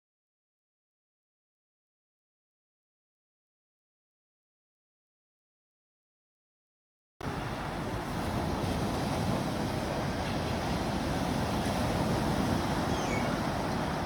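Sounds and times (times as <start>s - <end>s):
steady rushing noise: 7.2s - 14.0s
faint high chirps: 12.9s - 13.4s.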